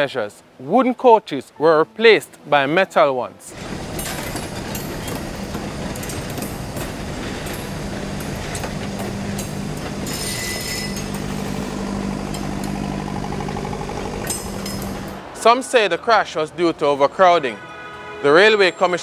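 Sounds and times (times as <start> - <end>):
train wheels rumbling on track: 3.5 - 15.3.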